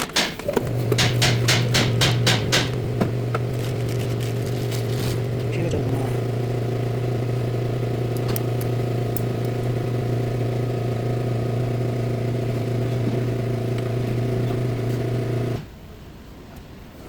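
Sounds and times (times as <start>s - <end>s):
car engine idling: 0.5s - 15.6s.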